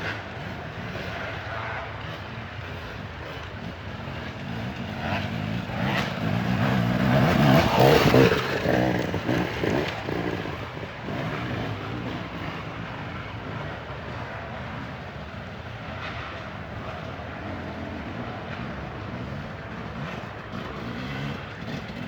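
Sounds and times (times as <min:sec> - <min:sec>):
dirt bike engine revving: 0:04.4 - 0:14.7, 0:17.3 - 0:22.0.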